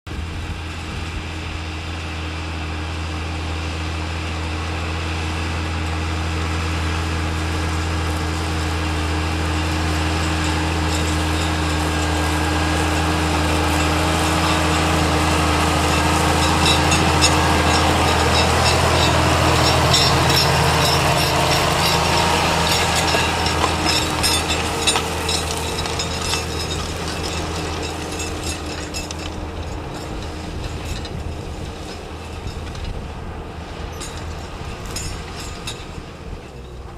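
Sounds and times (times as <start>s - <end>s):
tractor diesel engine: 0.1s - 36.9s
rapid rattling clatter: 8.8s - 36.9s.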